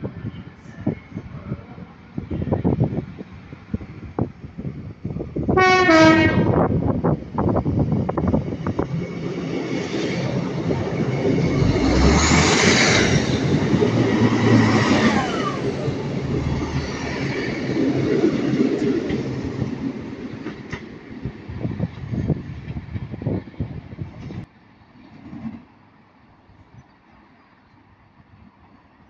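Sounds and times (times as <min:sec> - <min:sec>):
train wheel and rail noise: 0:00.0 - 0:29.0
diesel train engine running: 0:10.2 - 0:18.0.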